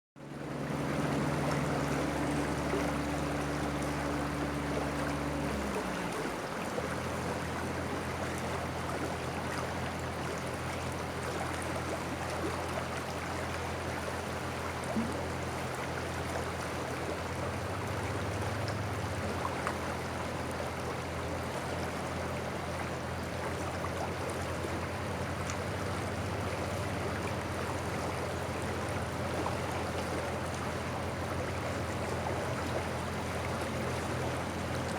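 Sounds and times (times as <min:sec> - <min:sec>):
river water rushing: 0:00.5 - 0:34.9.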